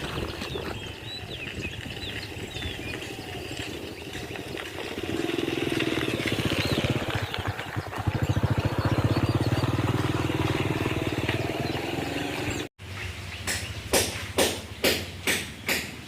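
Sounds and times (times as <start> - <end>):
engine running with rapid pulse: 2.9 - 12.7
sharp knocks: 13.4 - 16.0.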